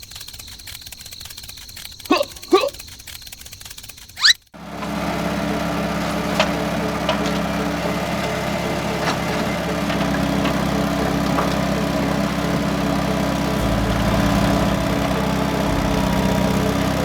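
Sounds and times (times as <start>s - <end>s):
small motor humming: 0.0s - 17.0s.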